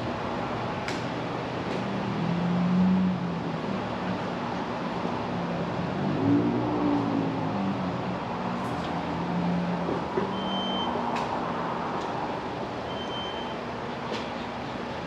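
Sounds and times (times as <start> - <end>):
short high beeps: 12.9 - 13.6.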